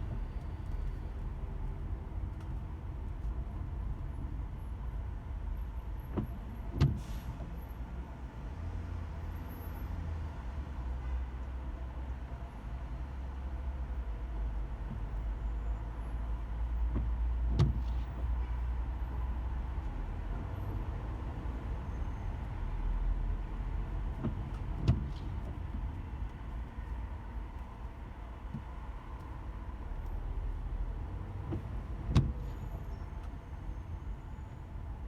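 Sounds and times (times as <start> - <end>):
car cabin rumble: 23.4 - 33.4.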